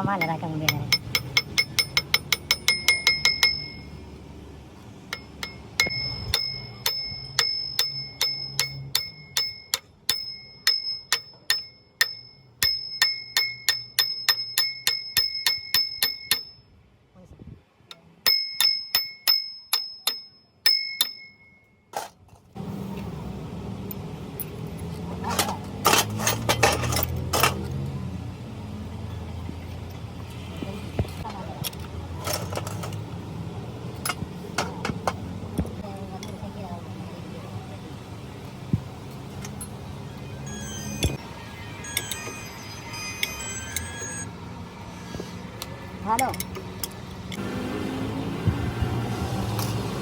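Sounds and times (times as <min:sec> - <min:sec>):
steady workshop noise: 0:00.0 - 0:16.8, 0:17.8 - 0:50.0
hammer striking steel: 0:00.1 - 0:04.0, 0:05.1 - 0:16.7, 0:17.9 - 0:21.7.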